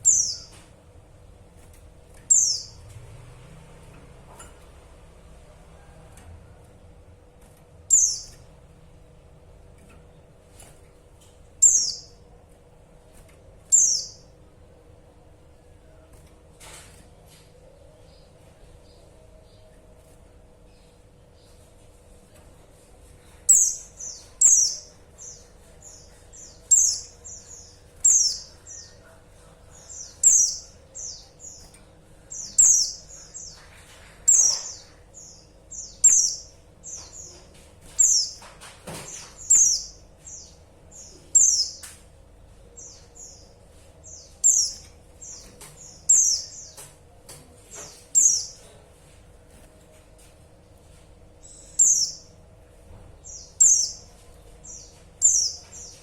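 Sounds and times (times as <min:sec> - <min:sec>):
bird chirping: 0:00.0 - 0:00.6, 0:02.2 - 0:03.0, 0:07.9 - 0:08.4, 0:11.6 - 0:12.2, 0:13.7 - 0:14.2, 0:29.7 - 0:38.5, 0:39.1 - 0:41.9, 0:42.7 - 0:46.8, 0:51.4 - 0:52.3, 0:53.2 - 0:56.0.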